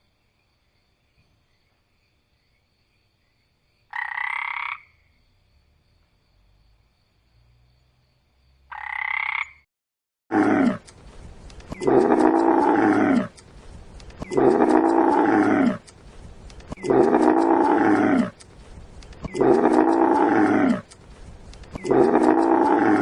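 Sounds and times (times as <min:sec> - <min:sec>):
large animal deep calls: 0:11.7 - 0:13.4, 0:14.2 - 0:15.9, 0:16.7 - 0:18.4, 0:19.2 - 0:21.0, 0:21.7 - 0:23.0
high-pitched animal call: 0:19.2 - 0:20.9, 0:21.7 - 0:23.0.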